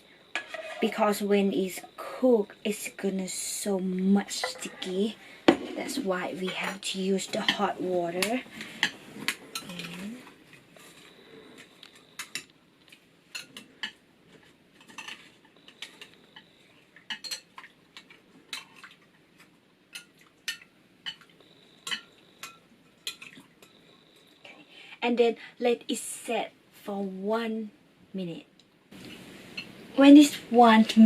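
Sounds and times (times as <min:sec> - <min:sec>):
clinks and knocks against bowl: 0:20.0 - 0:23.8.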